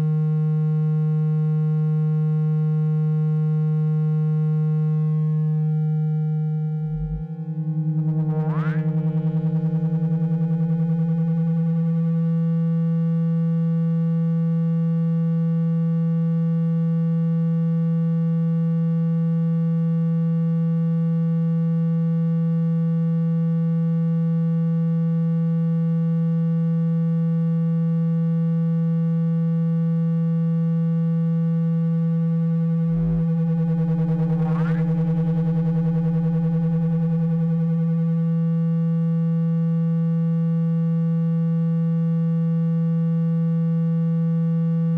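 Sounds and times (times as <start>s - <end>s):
low electronic hum tone: 0.0s - 44.9s.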